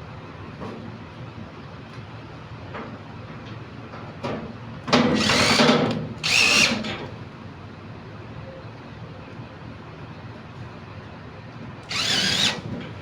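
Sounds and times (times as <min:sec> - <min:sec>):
power drill running: 0:05.2 - 0:06.9, 0:11.8 - 0:12.7.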